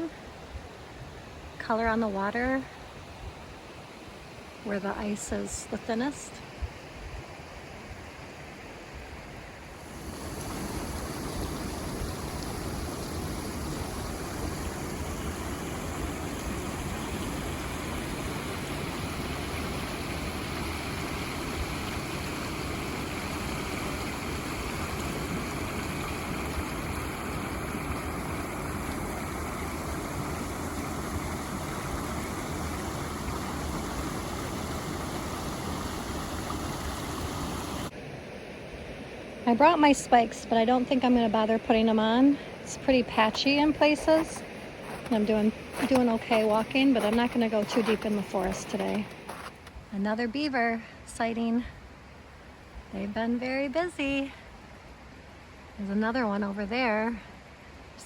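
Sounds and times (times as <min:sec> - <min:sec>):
river water rushing: 0:09.6 - 0:37.9, 0:42.2 - 0:49.8.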